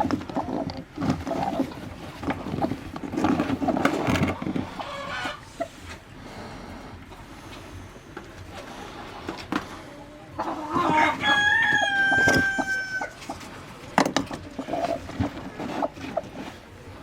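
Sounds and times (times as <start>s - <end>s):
chickens clucking: 0.0s - 17.0s
rooster crowing: 10.6s - 13.2s.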